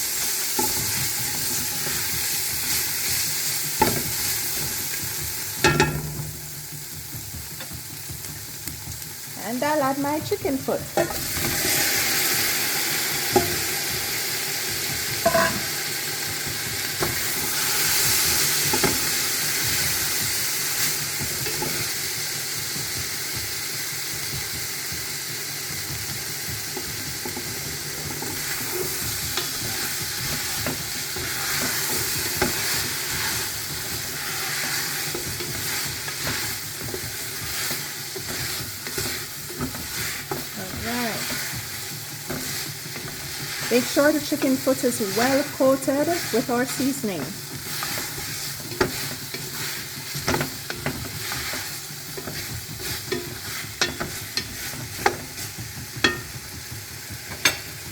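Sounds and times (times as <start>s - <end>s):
food sizzling in a pot: 0.0s - 57.9s
stirring knocks: 0.6s - 12.4s, 25.8s - 57.9s.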